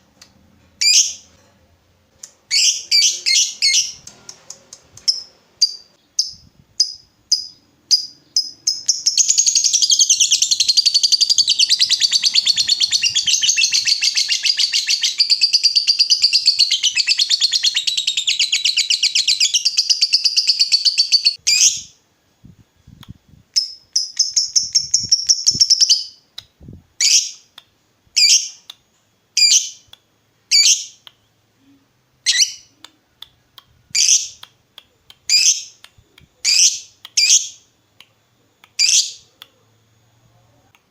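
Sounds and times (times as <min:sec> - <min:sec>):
bird chirps: 0:05.0 - 0:22.0.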